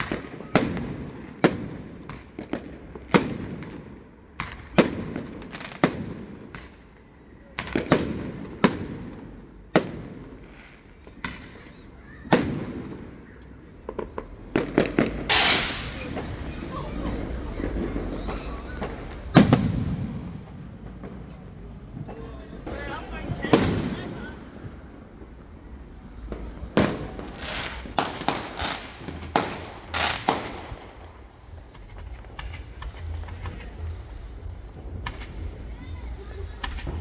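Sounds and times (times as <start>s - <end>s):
fireworks bangs: 0.0s - 37.0s
fireworks hissing burst: 14.2s - 20.8s, 26.2s - 37.0s.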